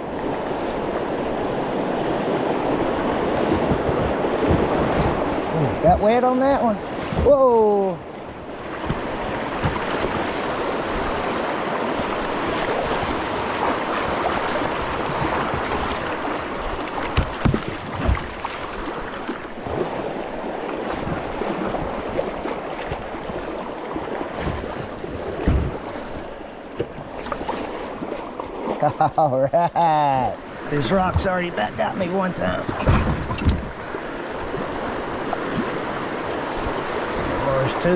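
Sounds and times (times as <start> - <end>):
rushing river rapids: 0.0 - 26.5
dull low thumps: 3.4 - 6.2.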